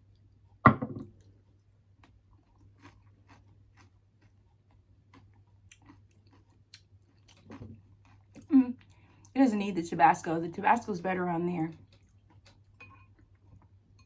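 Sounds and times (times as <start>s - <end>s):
chewing food: 0.0s - 9.4s, 11.7s - 14.0s
loud short knock: 0.7s - 1.1s.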